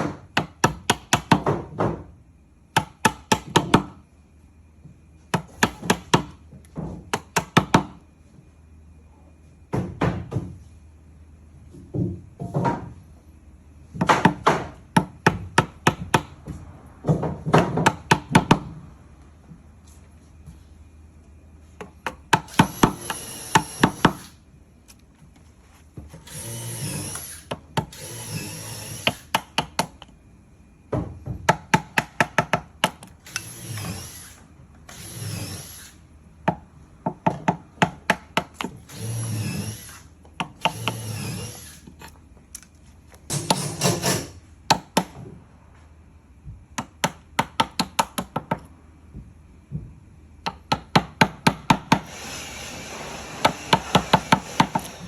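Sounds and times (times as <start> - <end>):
tool cutting into wood: 22.4 - 24.3, 26.2 - 29.3, 33.2 - 36.0, 38.9 - 40.0, 40.6 - 41.9, 43.3 - 44.4, 51.9 - 55.0.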